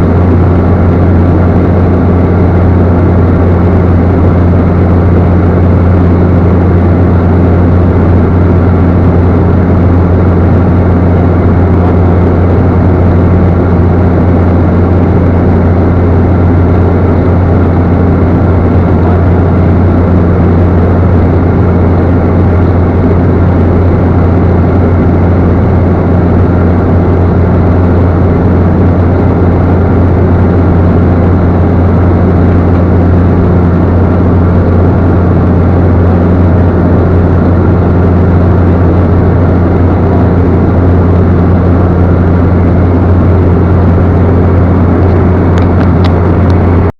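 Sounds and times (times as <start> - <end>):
turboprop engine droning: 0.0 - 46.9.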